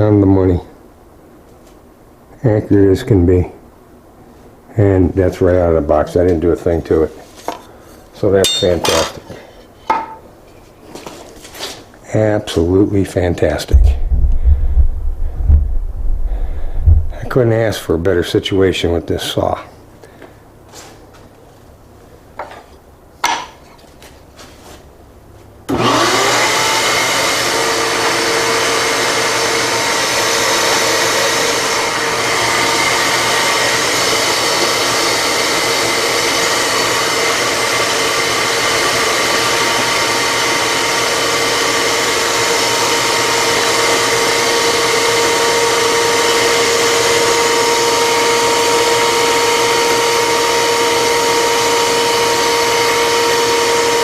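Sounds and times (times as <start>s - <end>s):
shop vacuum motor running: 25.7s - 54.0s.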